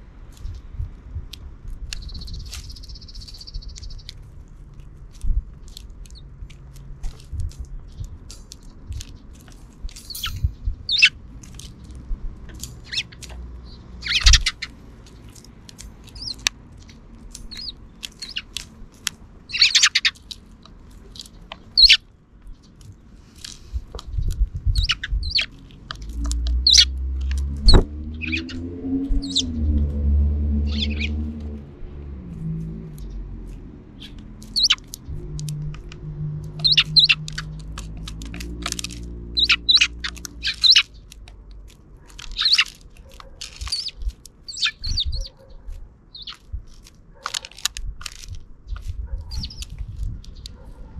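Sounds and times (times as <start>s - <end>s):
low engine rumble and hum: 0.0s - 50.9s
sparrows chirping: 1.8s - 31.6s, 32.6s - 47.6s, 48.6s - 50.9s
sharp little clicks: 32.9s - 45.3s.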